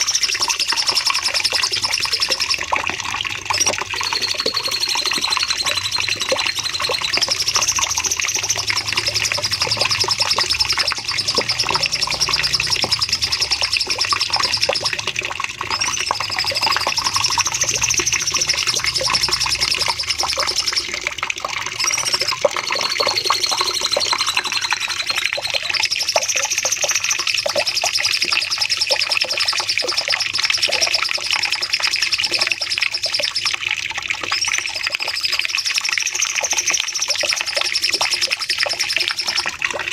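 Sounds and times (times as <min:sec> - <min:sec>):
bird singing fast high trill: 0:03.6 - 0:21.0, 0:21.7 - 0:26.4.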